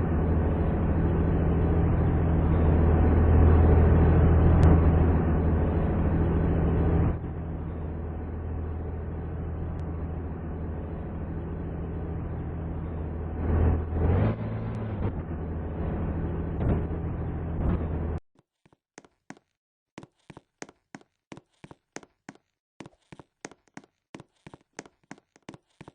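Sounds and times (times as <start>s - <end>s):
fire truck engine running: 0.0s - 18.2s.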